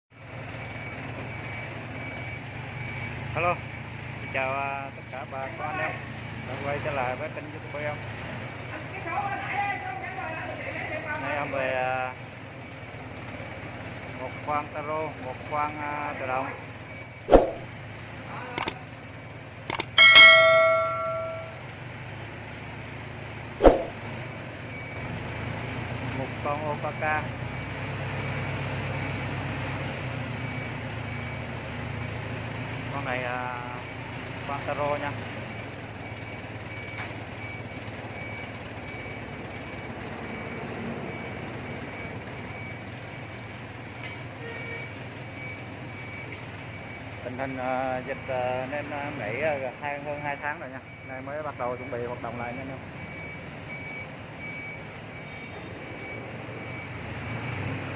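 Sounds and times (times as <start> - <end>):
short high beeps: 17.3 - 17.7, 19.7 - 21.6
brief clicks: 18.6 - 18.8, 19.7 - 20.0
metallic strike ringing: 19.9 - 21.6.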